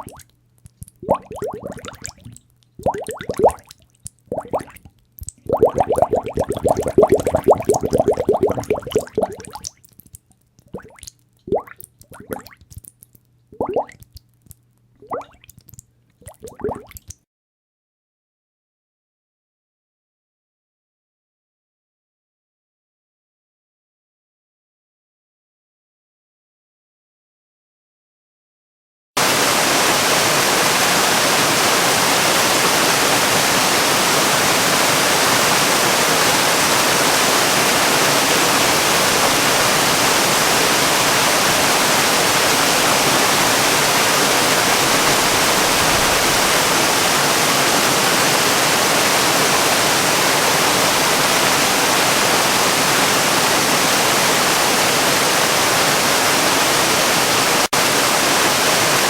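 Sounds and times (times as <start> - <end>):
rushing water roar: 5.6 - 9.6, 29.2 - 59.0.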